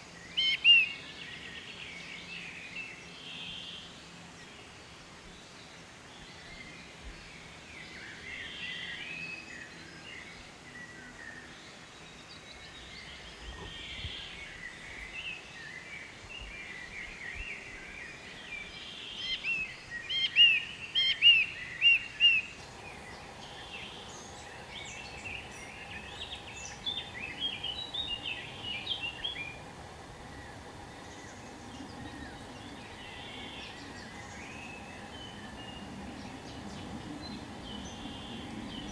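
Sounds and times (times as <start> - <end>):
birds chirping and singing: 22.6 - 38.9
faint steady hum: 22.6 - 38.9.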